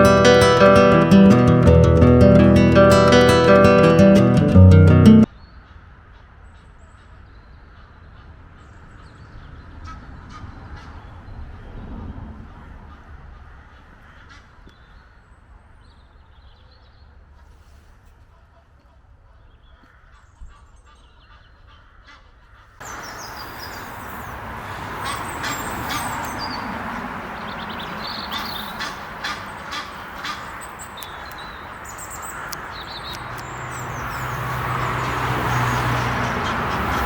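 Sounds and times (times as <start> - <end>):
geese honking: 22.9 - 37.0.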